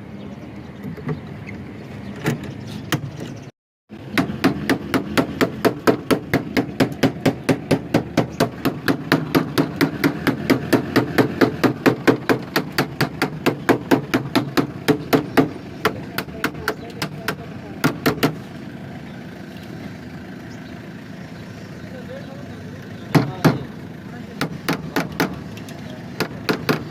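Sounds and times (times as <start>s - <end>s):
rapid hammering strikes: 4.0s - 18.4s, 24.4s - 25.4s, 26.2s - 26.9s.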